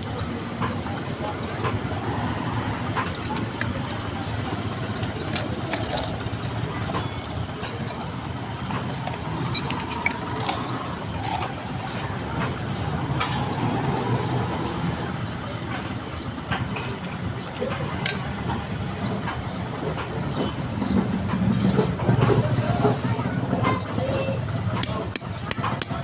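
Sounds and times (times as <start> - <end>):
passing traffic: 0.0 - 26.0.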